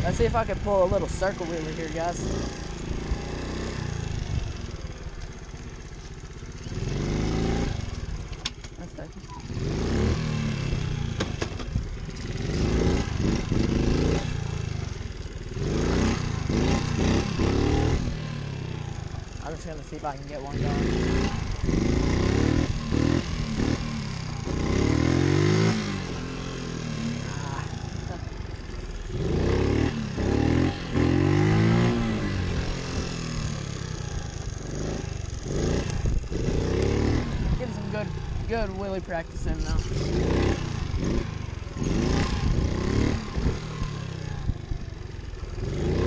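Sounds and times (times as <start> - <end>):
pit bike engine revving: 0.0 - 46.0.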